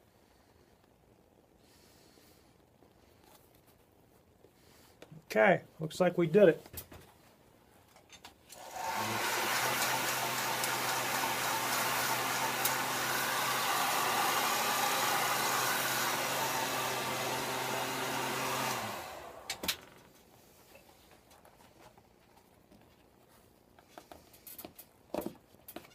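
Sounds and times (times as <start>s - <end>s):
heat gun blowing with motor hum: 8.5s - 20.0s.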